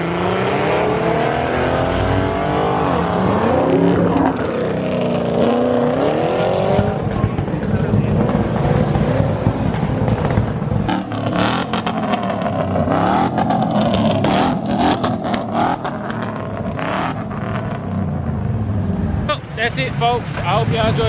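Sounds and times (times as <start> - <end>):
truck engines revving: 0.0 - 21.0
clatter: 6.7 - 16.7.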